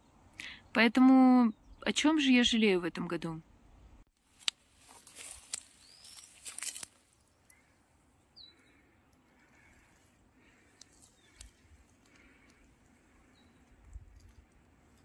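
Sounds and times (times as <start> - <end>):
high bird chirps: 5.7 - 6.6.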